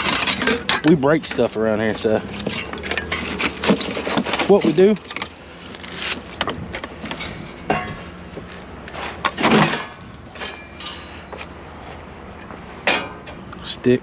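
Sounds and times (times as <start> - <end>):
junk clattering: 0.0 - 11.1, 12.8 - 13.4
junk knocking and clanking: 0.0 - 11.1.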